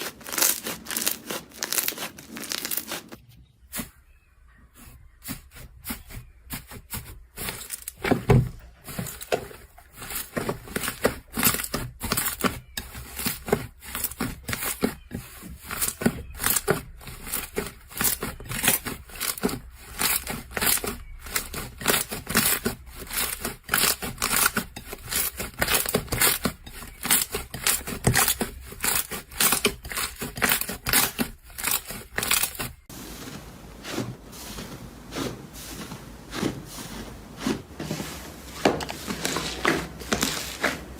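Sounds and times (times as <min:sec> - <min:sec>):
crunchy material being crushed: 0:00.0 - 0:04.6, 0:05.2 - 0:40.9.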